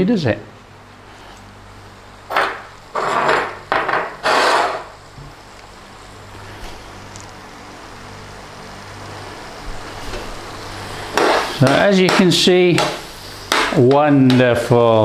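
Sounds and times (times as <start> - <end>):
pan cooking hum and hiss: 0.0 - 15.0
utensil scraping a pan: 2.3 - 5.0, 10.8 - 14.7.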